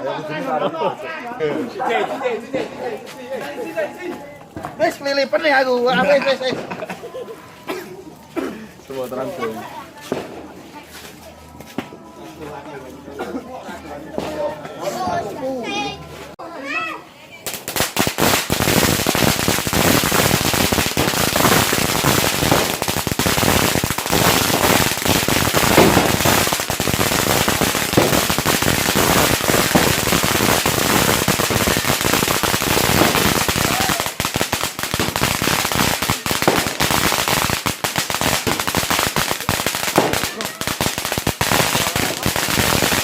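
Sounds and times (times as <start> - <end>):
firecrackers banging: 2.4 - 7.2, 9.8 - 10.8, 17.4 - 43.0.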